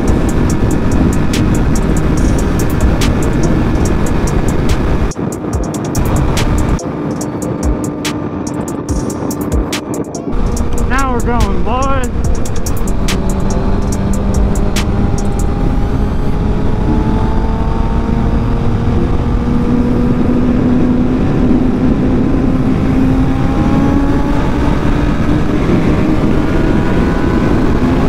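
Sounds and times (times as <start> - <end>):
heavy wind rush: 0.0 - 28.0.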